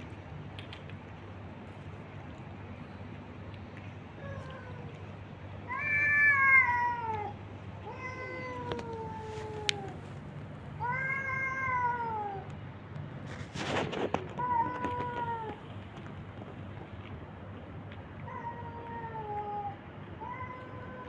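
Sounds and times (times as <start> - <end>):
cat meowing: 5.7 - 10.0, 10.8 - 12.4
noisy rustle: 8.1 - 10.9, 12.6 - 17.2.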